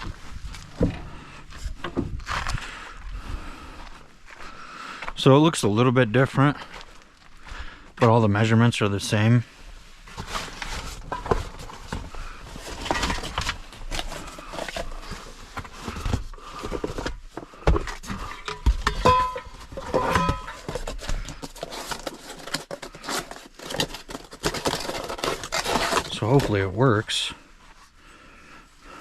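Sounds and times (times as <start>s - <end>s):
metal tools clinking and knocking: 18.3s - 20.8s.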